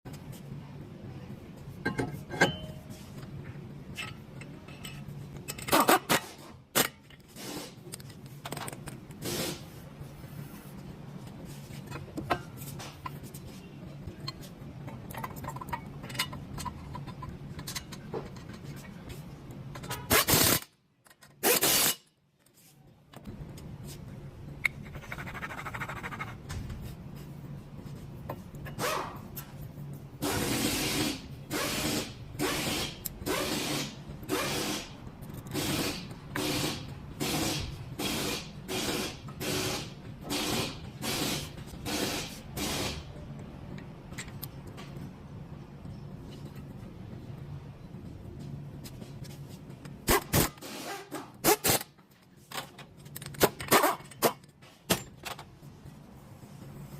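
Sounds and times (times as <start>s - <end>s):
steady low hum: 0.1s - 50.6s
metal tools knocking and scraping: 1.8s - 3.1s, 3.9s - 7.3s, 14.1s - 20.1s.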